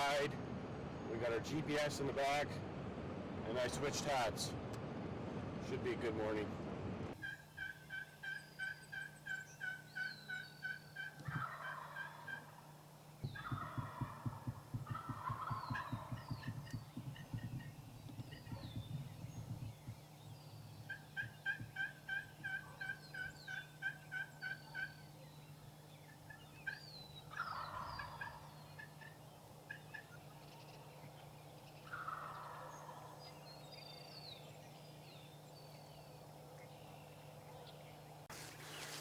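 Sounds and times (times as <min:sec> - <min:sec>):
songbirds chirping: 0:00.0 - 0:04.9, 0:05.6 - 0:39.0
turkey yelping: 0:07.2 - 0:19.8, 0:20.7 - 0:25.1, 0:26.0 - 0:30.7, 0:31.8 - 0:33.2
turkey gobbling: 0:07.2 - 0:25.1, 0:26.0 - 0:33.4.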